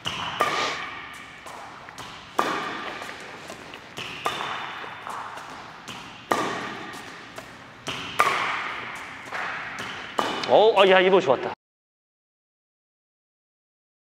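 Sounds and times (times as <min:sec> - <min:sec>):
racket striking shuttlecock: 0:00.0 - 0:10.6
light racket taps: 0:00.4 - 0:10.5.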